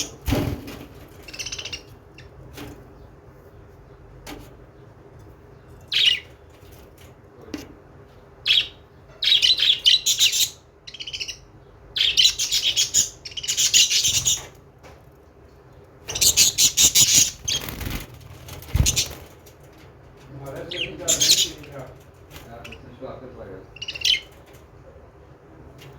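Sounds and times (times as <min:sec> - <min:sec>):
budgerigars chirping: 0:01.2 - 0:02.3, 0:05.9 - 0:06.3, 0:08.4 - 0:14.5, 0:16.1 - 0:18.0, 0:18.8 - 0:19.3, 0:20.6 - 0:21.9, 0:22.5 - 0:24.3.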